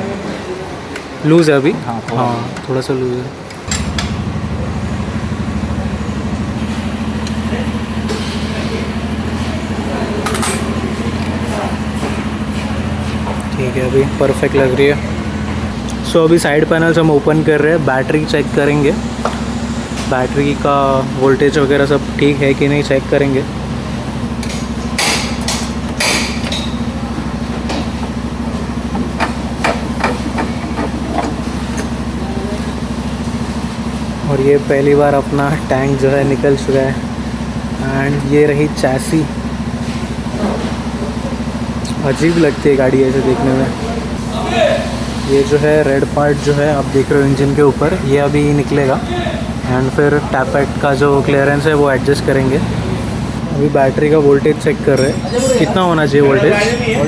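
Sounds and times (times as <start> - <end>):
low machine hum: 1.8 - 57.0
engine idling: 3.3 - 57.0
hammer knocks on metal: 27.6 - 32.0.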